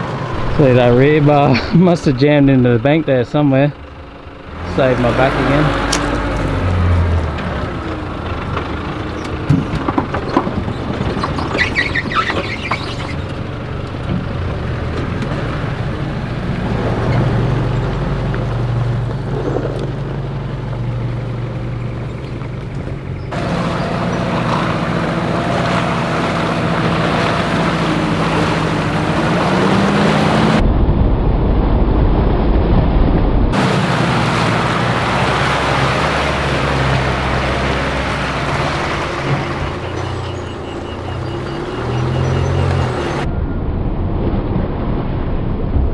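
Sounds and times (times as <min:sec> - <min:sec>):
four-wheel-drive engine running: 0:00.0 - 0:30.6, 0:33.5 - 0:43.3
knocks and rattles: 0:03.8 - 0:30.6.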